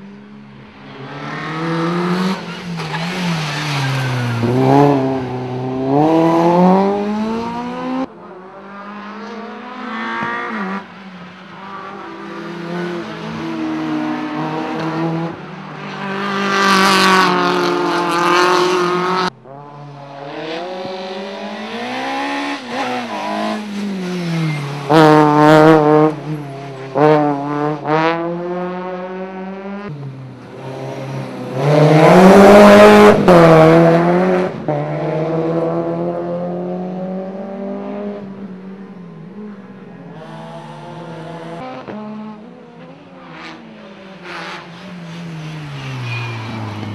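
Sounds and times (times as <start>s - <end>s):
cars passing loudly: 0.0s - 46.9s
rally car engines revving: 0.0s - 46.9s
tyre squeal: 44.3s - 46.9s.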